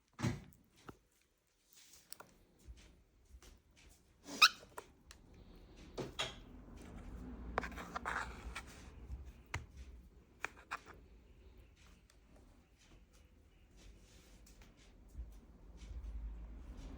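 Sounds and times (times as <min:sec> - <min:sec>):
cockatiel high call: 0:04.3 - 0:04.7.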